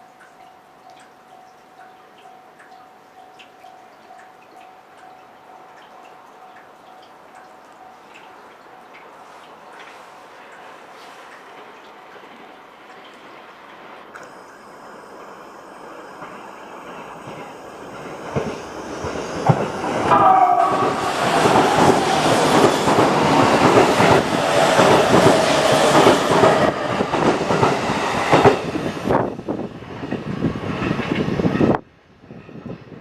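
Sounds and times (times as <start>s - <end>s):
train wheels clacking over rails: 9.7s - 31.8s.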